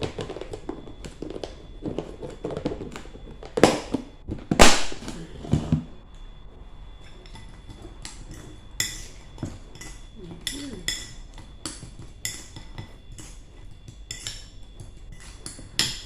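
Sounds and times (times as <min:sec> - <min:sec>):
metal utensil clinking on dish: 0:15.1 - 0:16.0.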